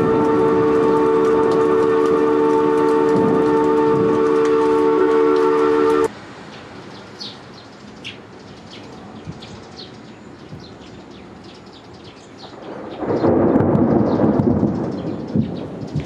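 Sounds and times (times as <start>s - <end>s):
thunder rumbling: 0.0s - 6.1s, 12.4s - 16.0s
heavy rain: 0.0s - 7.0s, 12.3s - 16.0s.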